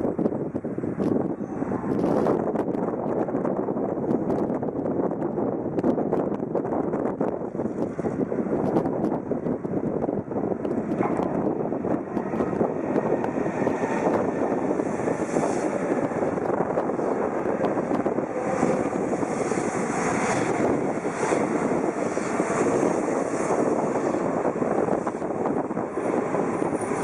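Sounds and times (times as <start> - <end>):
high-speed train rushing past: 0.0 - 27.0.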